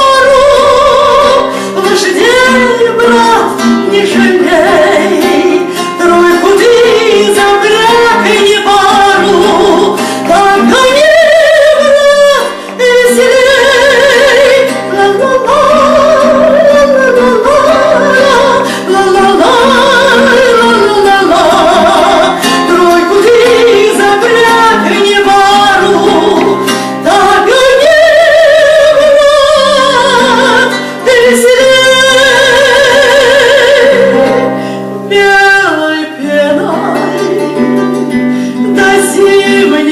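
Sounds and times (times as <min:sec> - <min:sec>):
woman singing with vibrato: 0:00.0 - 0:39.9
singer breathing: 0:01.4 - 0:01.8, 0:10.0 - 0:10.3, 0:12.5 - 0:12.8, 0:18.6 - 0:18.9, 0:26.6 - 0:27.0, 0:34.5 - 0:35.1, 0:38.2 - 0:38.7
instrumental accompaniment: 0:28.7 - 0:39.9.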